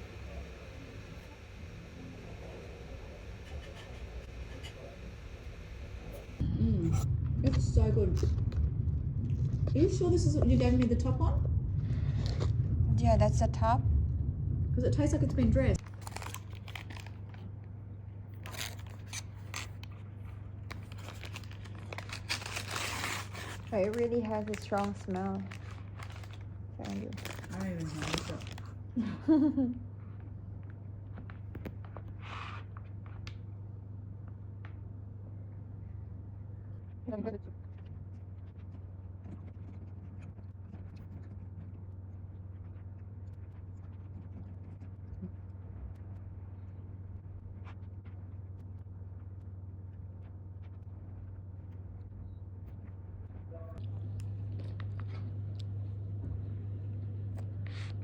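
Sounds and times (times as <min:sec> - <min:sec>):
steady low hum: 0:00.0 - 0:58.0
crisp food clicks and crinkles: 0:15.8 - 0:28.8.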